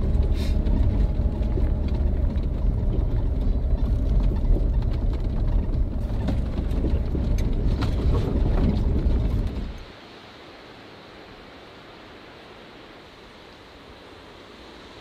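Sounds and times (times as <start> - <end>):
tyres and suspension knocking: 0.0 - 9.8
jeep driving on dirt track: 0.0 - 9.9.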